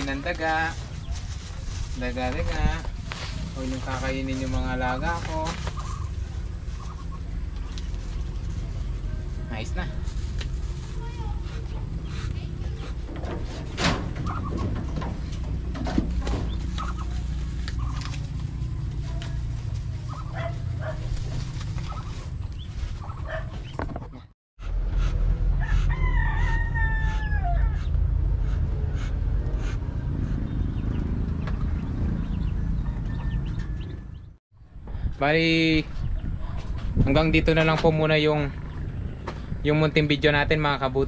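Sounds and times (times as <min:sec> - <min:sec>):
steady low rumble: 0:00.0 - 0:41.0
rooster crowing: 0:25.5 - 0:28.0, 0:32.8 - 0:34.2.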